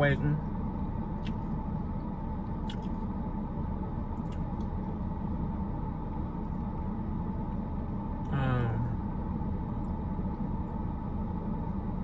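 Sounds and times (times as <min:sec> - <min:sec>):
faint steady hum: 0:00.0 - 0:12.0
low rumble inside car: 0:00.0 - 0:12.0.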